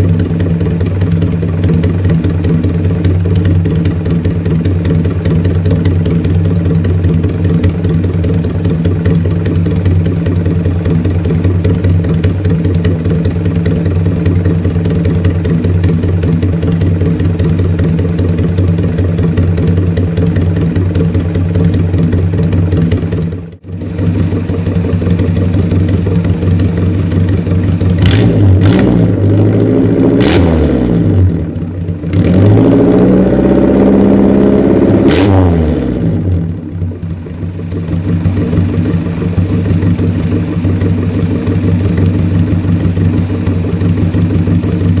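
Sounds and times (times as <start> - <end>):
car engine idling and revving: 0.0 - 45.0.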